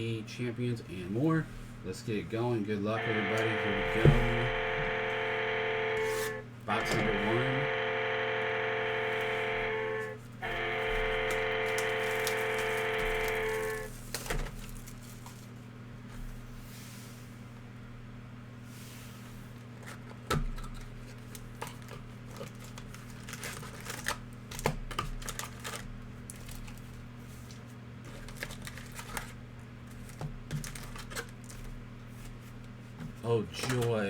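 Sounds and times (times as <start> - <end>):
low electrical hum: 0.0 - 34.0
shrink wrap crinkling and tearing: 10.5 - 15.6, 21.0 - 31.7.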